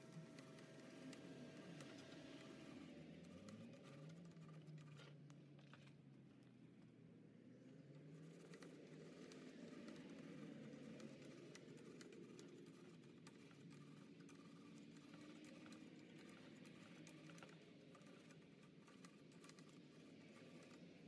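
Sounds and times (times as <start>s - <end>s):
light clicks and ticks: 8.3s - 20.8s.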